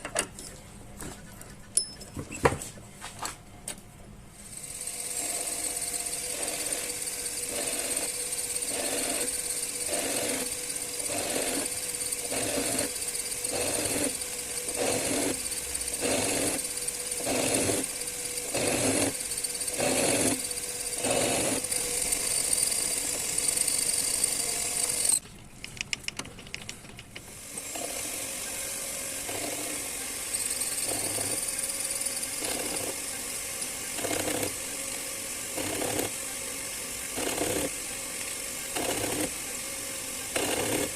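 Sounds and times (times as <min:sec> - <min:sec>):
metal lathe whining: 0:04.5 - 0:25.2, 0:27.4 - 0:40.9
clicks: 0:25.2 - 0:27.3.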